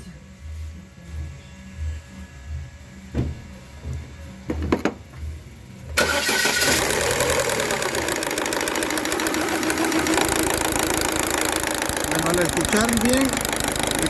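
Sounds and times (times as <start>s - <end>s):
car engine cranking and starting: 5.9s - 14.0s
engine idling with ticking clatter: 6.6s - 14.0s.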